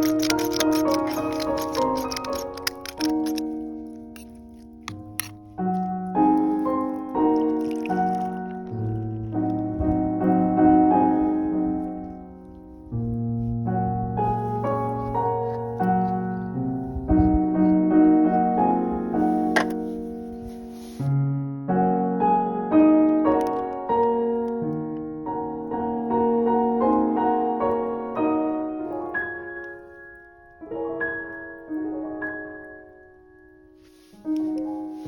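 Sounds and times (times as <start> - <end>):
solo piano music: 2.0 - 35.0.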